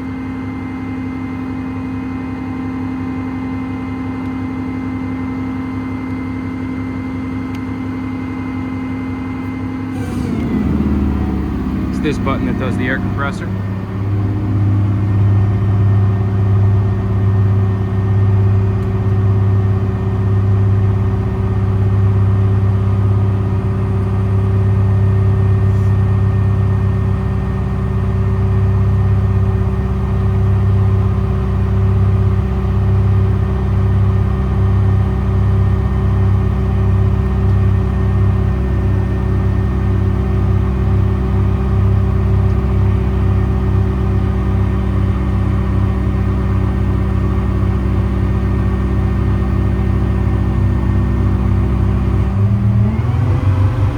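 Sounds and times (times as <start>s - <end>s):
diesel engine idling: 7.7s - 53.9s
air compressor running: 9.2s - 19.1s, 23.0s - 26.3s.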